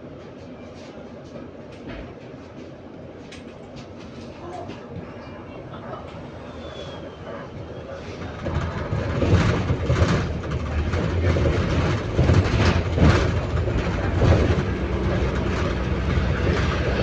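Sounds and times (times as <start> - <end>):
bus engine and body rumble: 0.0 - 17.0
knocks and rattles: 8.2 - 17.0.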